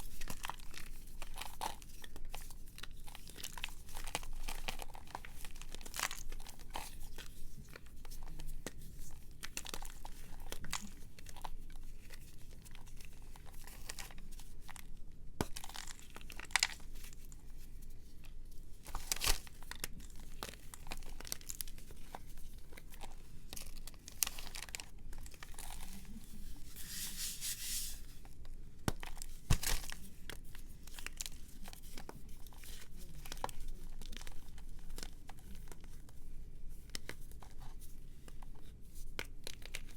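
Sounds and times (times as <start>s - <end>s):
brittle material crumbled by hand: 0.0s - 17.4s, 18.8s - 26.6s
rustling: 15.7s - 39.9s.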